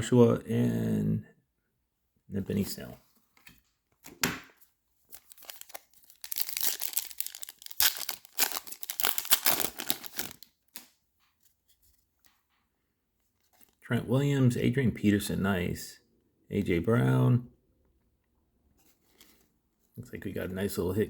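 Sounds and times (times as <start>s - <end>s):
plastic wrapper tearing and crinkling: 5.1s - 10.9s.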